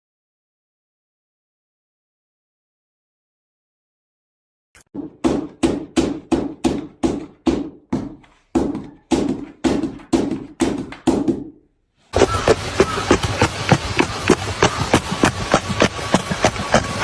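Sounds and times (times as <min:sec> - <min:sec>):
sharp knocks: 0:04.8 - 0:11.6.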